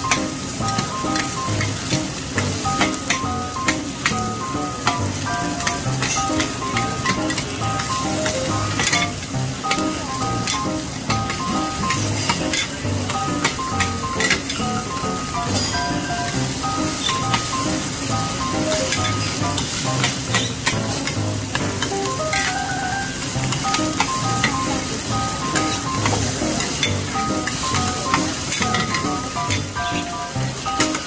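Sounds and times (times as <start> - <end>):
food sizzling in hot oil: 0.0 - 31.0
soft background music: 0.0 - 31.0
metal spatulas scraping a pan: 18.9 - 21.2.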